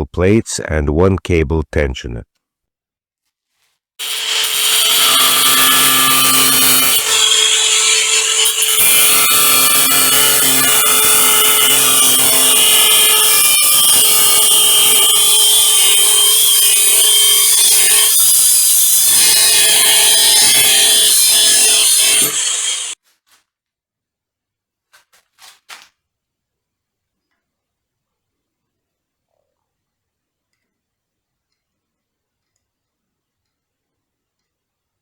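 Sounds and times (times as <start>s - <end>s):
power tool motor whine: 22.2s - 23.0s.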